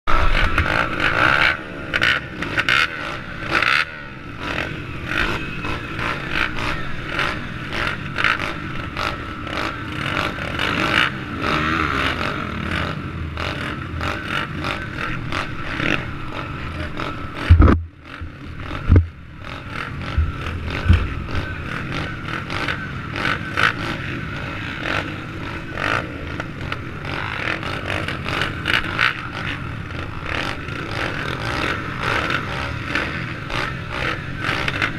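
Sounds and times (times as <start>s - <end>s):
pit bike engine running: 0.1s - 34.9s
heavy thumps: 17.4s - 17.9s.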